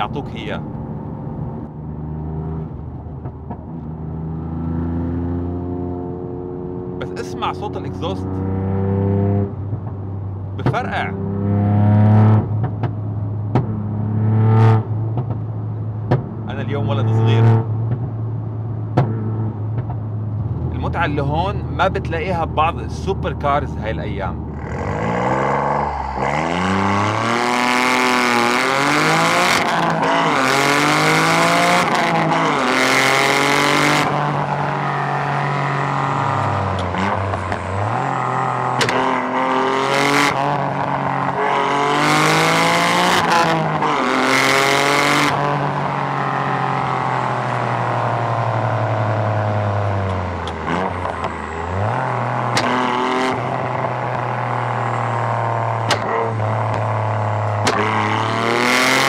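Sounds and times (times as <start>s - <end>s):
car engine accelerating hard: 0.0s - 9.9s, 10.6s - 12.9s, 18.9s - 59.0s
exhaust pops: 55.8s - 56.9s.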